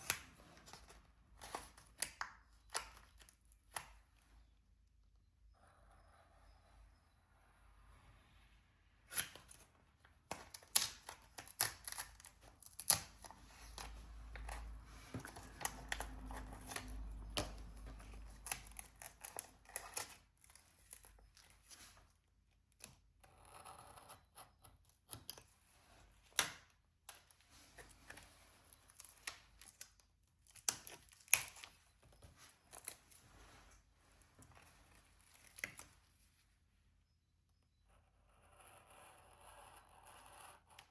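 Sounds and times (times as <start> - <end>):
soft rustling: 31.7 - 36.6.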